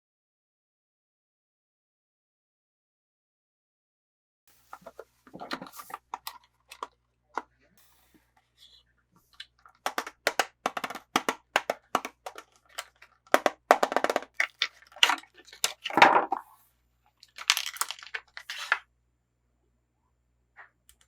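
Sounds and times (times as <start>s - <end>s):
packaging crinkling: 9.4s - 16.6s, 17.2s - 18.8s.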